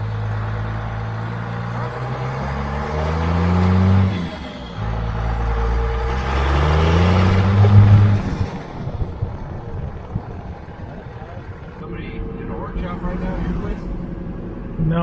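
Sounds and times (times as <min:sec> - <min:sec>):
diesel truck engine accelerating: 0:00.0 - 0:15.0.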